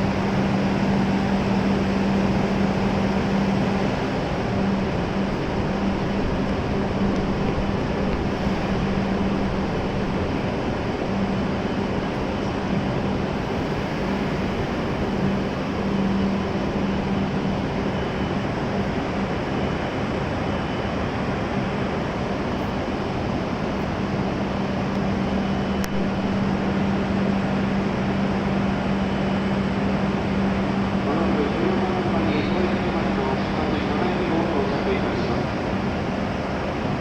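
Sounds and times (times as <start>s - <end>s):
low droning hum: 0.0s - 19.4s.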